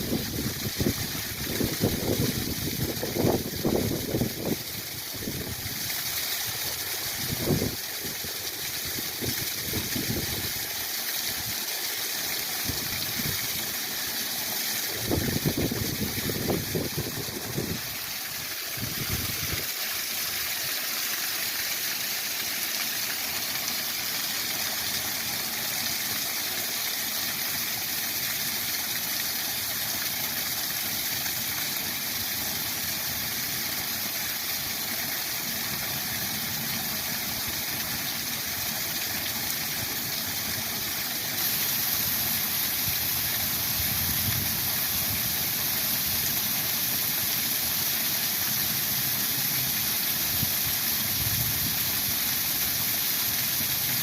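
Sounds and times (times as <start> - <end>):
waterfall rushing: 12.6 - 32.2, 32.8 - 54.0.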